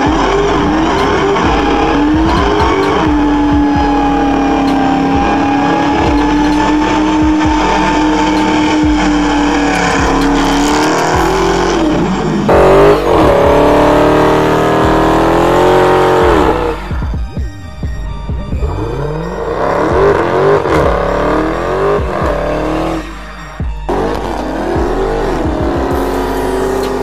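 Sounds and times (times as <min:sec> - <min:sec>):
tyres squealing: 0:00.0 - 0:12.6
engine at high revs: 0:00.0 - 0:17.2, 0:18.5 - 0:27.0.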